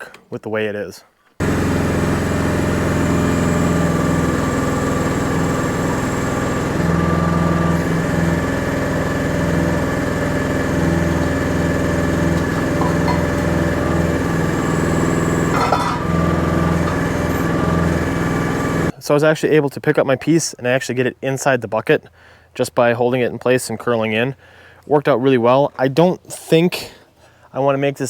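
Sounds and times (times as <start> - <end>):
excavator engine running: 1.4 - 18.9.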